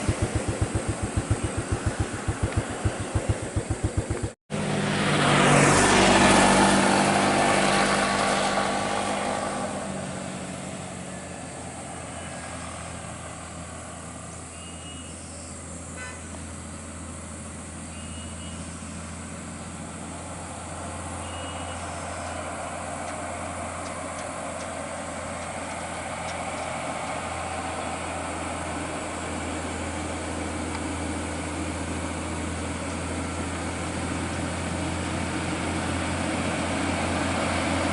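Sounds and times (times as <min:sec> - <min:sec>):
vehicle passing: 0:00.0 - 0:14.4, 0:18.8 - 0:29.4, 0:33.9 - 0:37.9
truck engine running: 0:00.0 - 0:14.5, 0:15.6 - 0:37.9.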